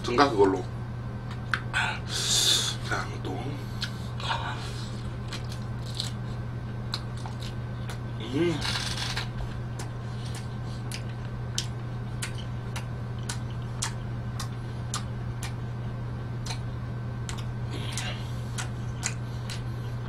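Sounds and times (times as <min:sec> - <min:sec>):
low electrical hum: 0:00.0 - 0:20.0
wet chewing clicks: 0:06.9 - 0:08.0, 0:09.7 - 0:15.6, 0:16.4 - 0:19.9.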